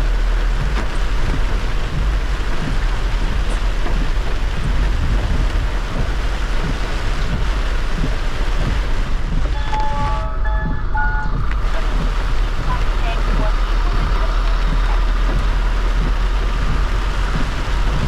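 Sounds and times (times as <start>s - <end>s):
heavy rain on a car: 0.0s - 18.0s
tyres rumbling on wet road: 0.0s - 18.0s
short steady tones: 9.5s - 11.6s.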